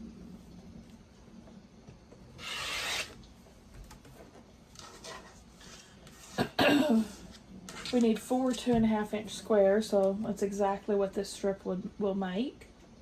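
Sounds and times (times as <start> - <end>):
fabric and ruler rustling: 2.4 - 3.2
rotary cutter cutting fabric: 2.4 - 3.2.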